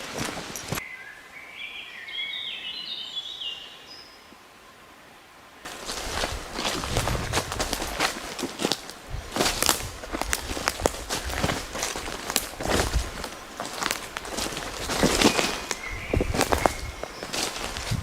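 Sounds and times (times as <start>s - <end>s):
footsteps on crunchy ground: 0.0s - 0.8s, 5.7s - 18.0s
songbird singing short clear notes: 15.2s - 17.6s.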